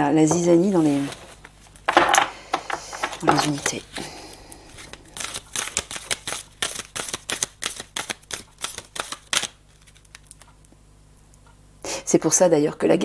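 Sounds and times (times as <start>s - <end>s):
cards being shuffled: 0.7s - 2.0s, 2.6s - 10.4s.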